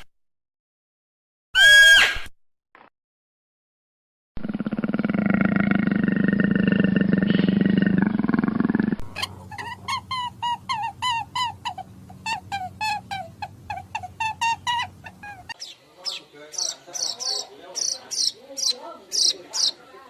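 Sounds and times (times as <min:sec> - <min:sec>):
animal rasping growl: 0:04.4 - 0:15.6.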